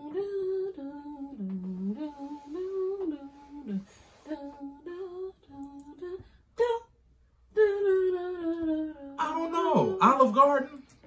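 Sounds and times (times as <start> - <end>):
person humming a tune: 0.0 - 6.8.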